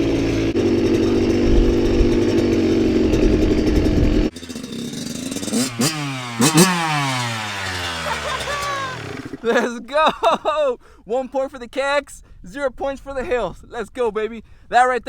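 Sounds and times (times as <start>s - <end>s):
dirt bike engine revving: 0.0s - 9.7s.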